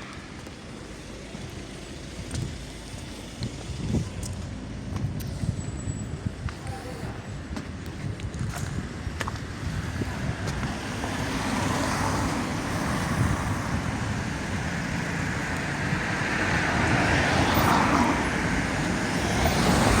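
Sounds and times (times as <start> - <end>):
road traffic noise: 0.0 - 20.0
vehicle passing: 9.6 - 20.0.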